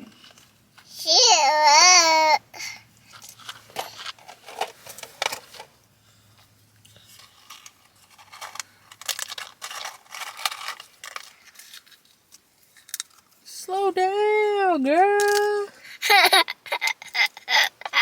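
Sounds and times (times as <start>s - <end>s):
chip packet crinkling: 7.1s - 13.3s.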